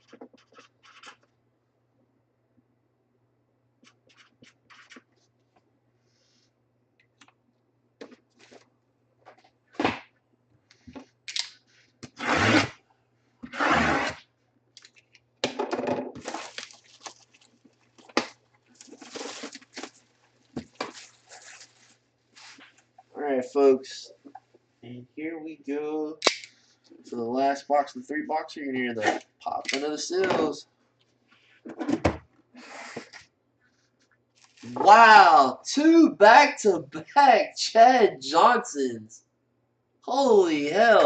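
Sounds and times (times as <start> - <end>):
packaging rustling and crinkling: 16.2 - 22.9, 34.3 - 34.8.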